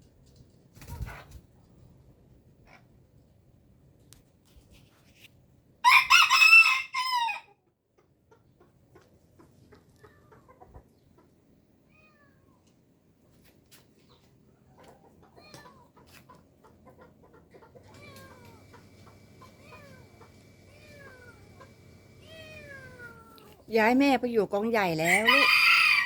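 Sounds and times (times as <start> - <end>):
kittens meowing: 17.8 - 23.6.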